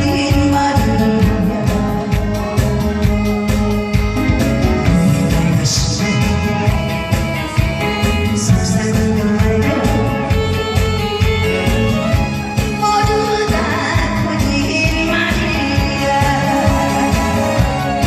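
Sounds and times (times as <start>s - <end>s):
person singing: 0.0s - 18.0s
song with steady beat: 0.0s - 18.0s.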